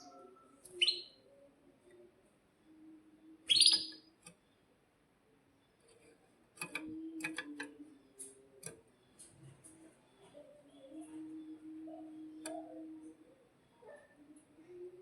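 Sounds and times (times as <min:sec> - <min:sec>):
canary chirping: 0:00.0 - 0:01.3, 0:03.4 - 0:04.1.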